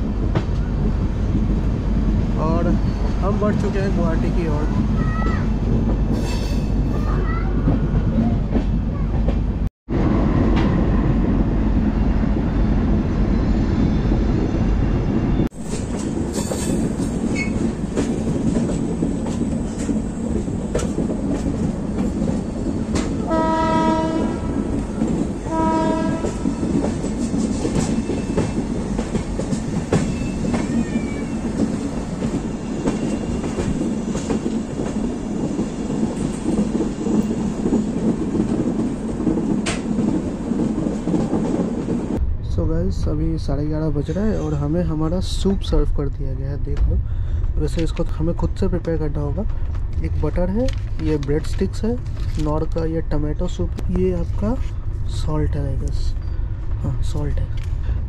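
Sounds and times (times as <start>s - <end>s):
train rumbling on tracks: 0.0s - 58.0s
train horn blasts: 23.2s - 24.7s, 25.4s - 26.5s.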